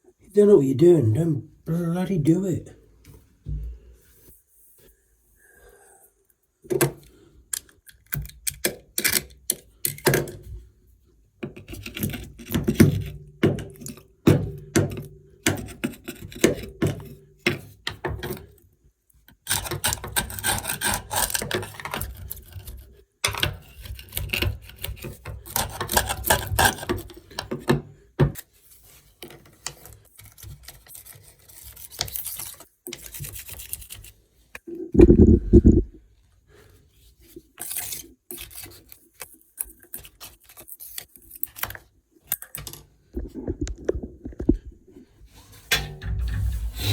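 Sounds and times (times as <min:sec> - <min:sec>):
hand scraping sealant: 0:36.6 - 0:41.6.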